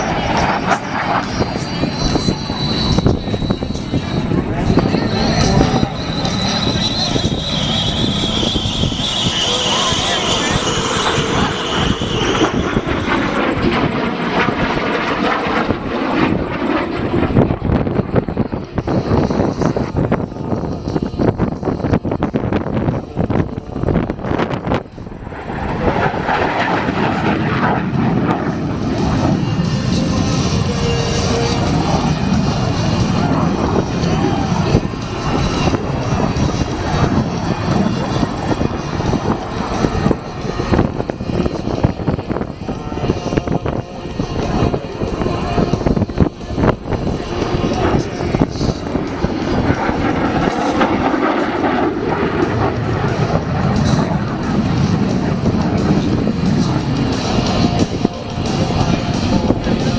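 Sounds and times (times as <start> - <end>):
jet fighter engine roar: 0.0 - 59.9.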